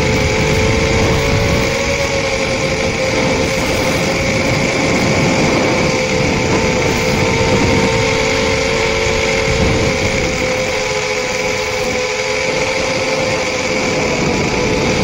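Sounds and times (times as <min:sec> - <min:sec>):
quadcopter motors humming and whining: 0:00.0 - 0:15.0.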